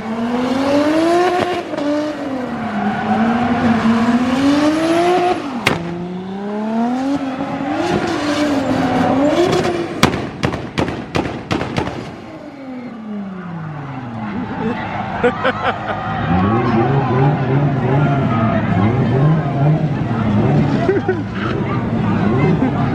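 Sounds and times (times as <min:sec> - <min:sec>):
car engine revving: 0:00.0 - 0:22.9
sharp cracks: 0:05.6 - 0:06.1, 0:09.5 - 0:12.5.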